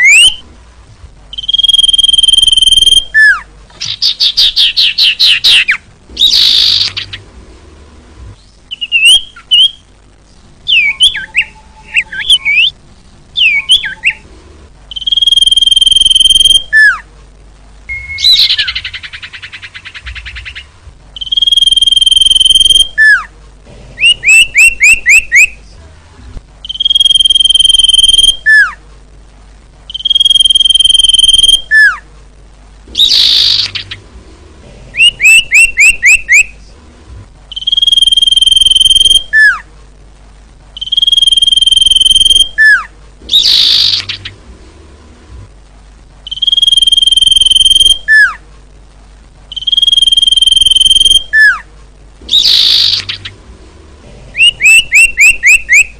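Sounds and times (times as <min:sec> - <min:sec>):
harsh rasping bird calls: 0:01.3 - 0:07.3, 0:17.9 - 0:23.3, 0:32.9 - 0:34.1, 0:35.0 - 0:36.6, 0:40.8 - 0:44.4, 0:52.3 - 0:53.4, 0:54.4 - 0:55.9
bird whistled notes: 0:01.4 - 0:03.4, 0:17.9 - 0:19.1, 0:21.2 - 0:23.3, 0:26.6 - 0:28.8, 0:29.9 - 0:32.0, 0:35.0 - 0:36.5, 0:37.5 - 0:39.6, 0:40.8 - 0:44.3, 0:46.3 - 0:48.4, 0:49.5 - 0:51.6, 0:52.3 - 0:53.3, 0:54.4 - 0:55.9.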